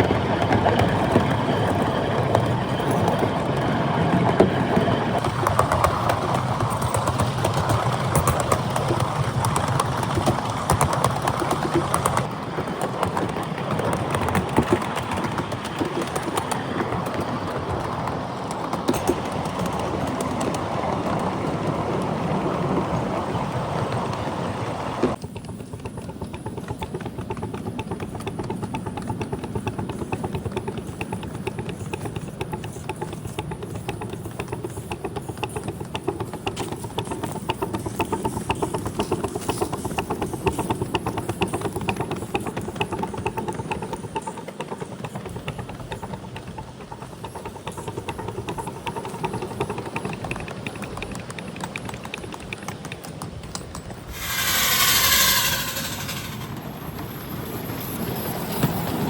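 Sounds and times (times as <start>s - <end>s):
rapid clicking of wheels: 0.0s - 22.8s, 25.1s - 56.6s
miniature train rumbling: 0.0s - 59.0s
loud short hiss: 54.2s - 56.6s.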